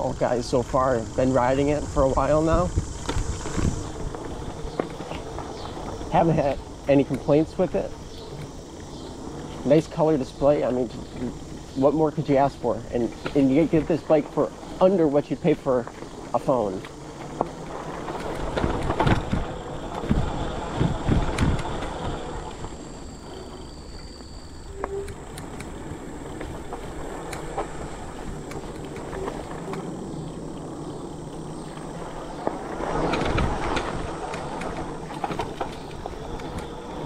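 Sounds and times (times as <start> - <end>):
tyres and wind rumbling: 0.0 - 37.0
bike knocks and rattles: 1.4 - 9.6, 15.7 - 23.0, 24.8 - 37.0.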